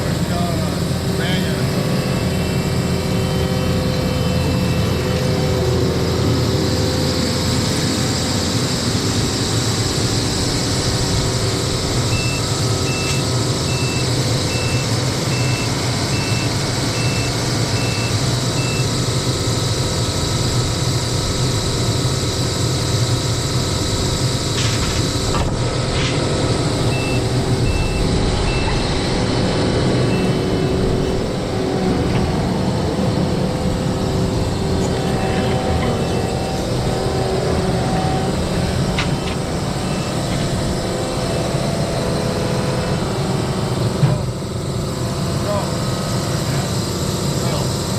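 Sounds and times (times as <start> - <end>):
heavy machine engine running: 0.0 - 47.9
backup alarm beeping: 12.1 - 19.0, 26.6 - 31.4, 35.1 - 41.5.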